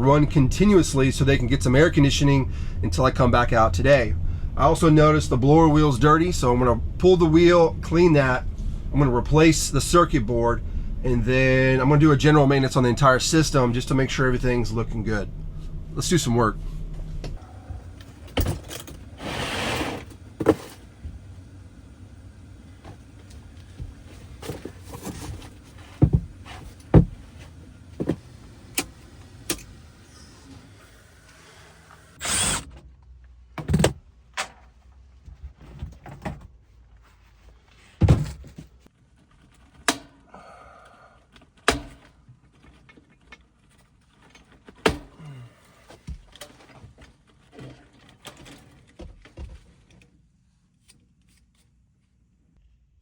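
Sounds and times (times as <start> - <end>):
low steady hum: 0.0 - 33.6.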